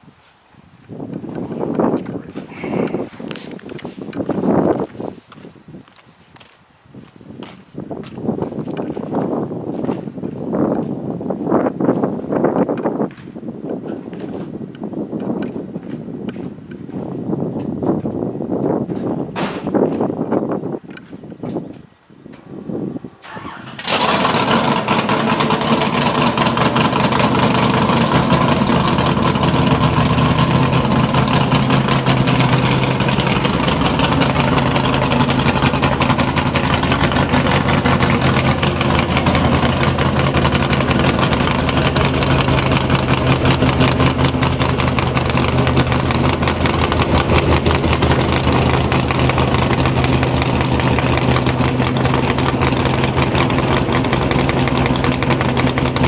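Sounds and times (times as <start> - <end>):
car engine starting and idling: 22.4 - 56.0.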